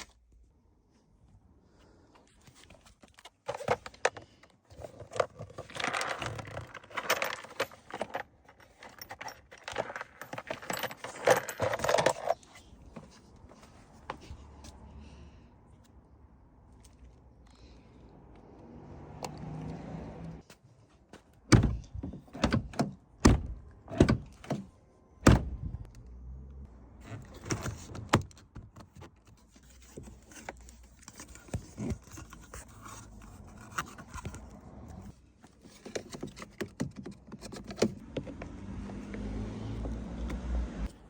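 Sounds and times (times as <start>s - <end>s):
metal tools clicking and rattling: 5.6s - 12.4s
sharp loud knocks and thunks: 21.5s - 24.3s, 25.2s - 25.7s.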